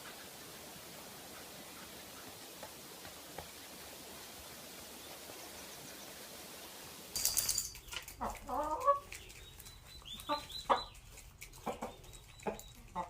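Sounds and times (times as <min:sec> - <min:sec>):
chicken clucking: 0:08.1 - 0:13.0.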